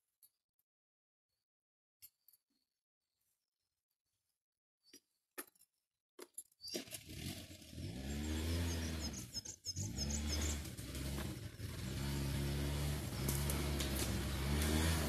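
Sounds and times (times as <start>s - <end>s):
scooter engine starting and idling: 6.7s - 15.0s
small clicks: 13.2s - 14.7s.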